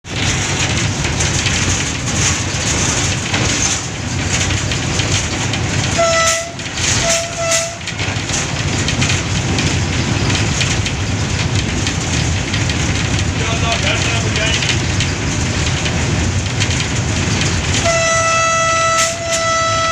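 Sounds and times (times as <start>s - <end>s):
train wheels rumbling on track: 0.0s - 19.9s
train horn blasts: 5.9s - 7.9s, 17.8s - 19.9s.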